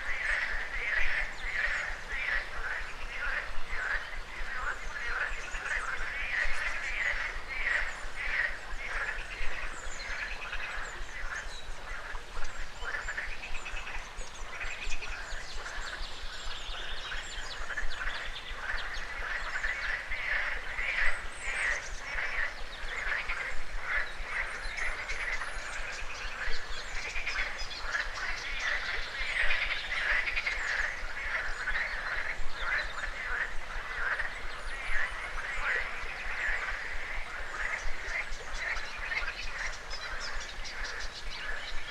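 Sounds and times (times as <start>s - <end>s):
frogs croaking: 0.0s - 41.9s.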